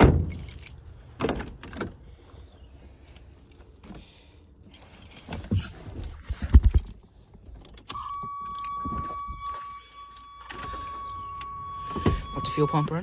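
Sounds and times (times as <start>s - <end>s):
keys jangling: 0.0s - 1.0s, 3.4s - 7.0s.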